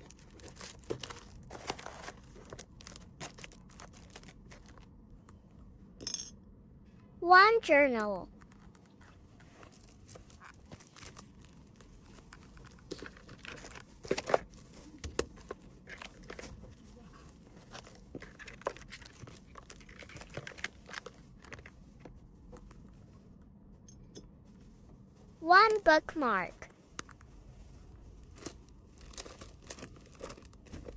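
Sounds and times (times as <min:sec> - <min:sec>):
packaging crinkling: 0:00.0 - 0:04.9, 0:09.8 - 0:21.8, 0:28.3 - 0:30.9.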